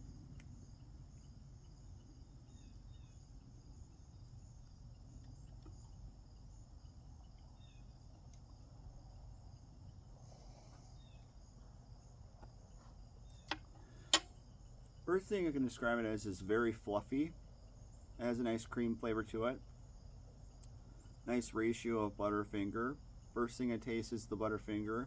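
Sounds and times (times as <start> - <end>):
faint high-pitched whine: 0.0 - 25.0
faint ticks: 0.2 - 2.0, 4.5 - 6.0, 7.2 - 8.8, 20.4 - 21.1.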